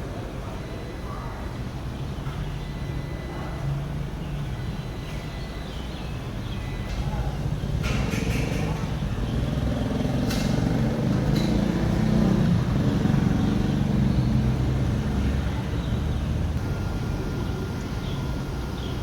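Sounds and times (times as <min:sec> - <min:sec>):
washing machine motor hum: 0:08.4 - 0:19.0.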